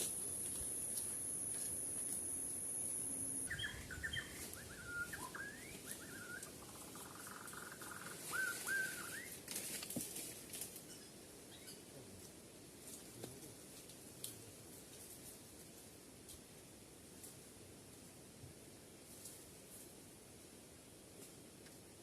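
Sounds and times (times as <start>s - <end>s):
steady high hiss: 0.0s - 9.4s
bird whistling: 3.4s - 9.4s.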